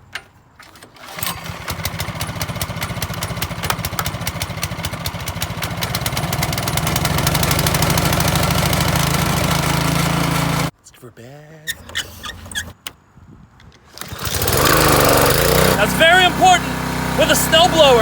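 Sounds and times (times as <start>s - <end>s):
snowblower engine running: 1.0s - 10.7s, 14.0s - 18.0s.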